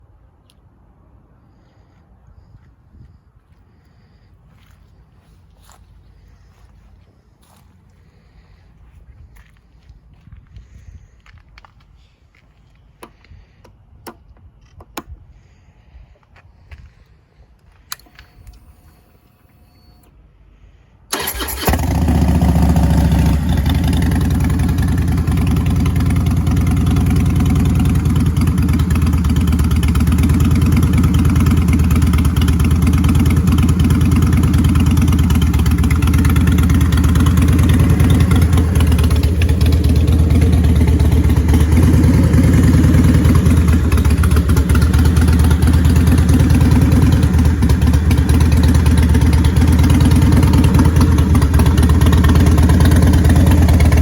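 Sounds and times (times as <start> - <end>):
motorcycle engine idling: 21.1 - 54.0
motorcycle starter cranking: 21.1 - 54.0.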